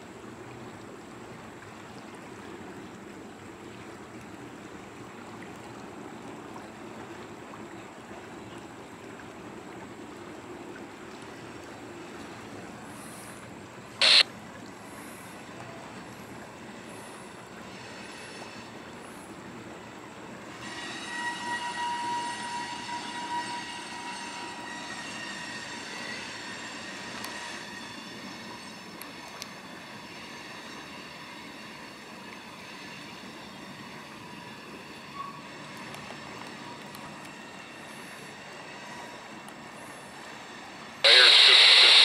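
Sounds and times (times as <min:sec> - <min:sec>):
high-pitched metallic wheel squeal: 0:20.5 - 0:29.0, 0:29.7 - 0:35.7.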